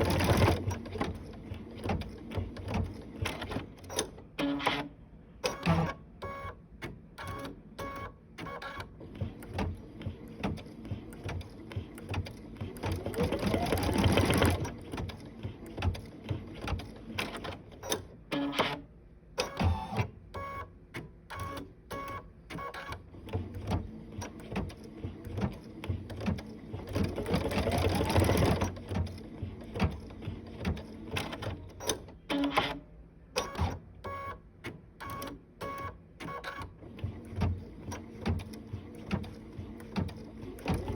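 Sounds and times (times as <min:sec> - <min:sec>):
sewing machine stitching: 0:00.0 - 0:04.9, 0:07.2 - 0:18.8, 0:21.4 - 0:32.8, 0:35.0 - 0:40.9.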